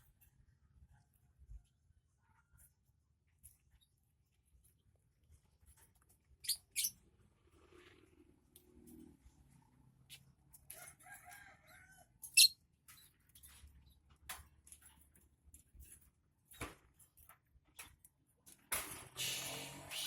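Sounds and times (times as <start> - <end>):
rooster crowing faintly: 10.7 - 12.2.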